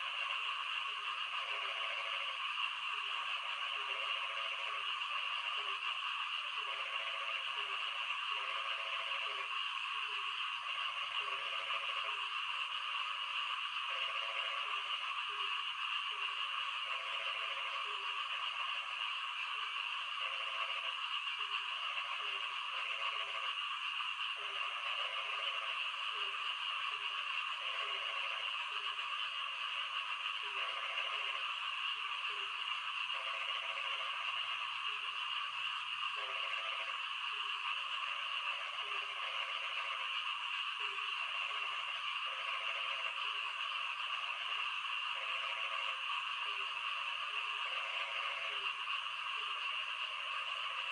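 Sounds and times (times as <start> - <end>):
frogs croaking: 0.0 - 50.9.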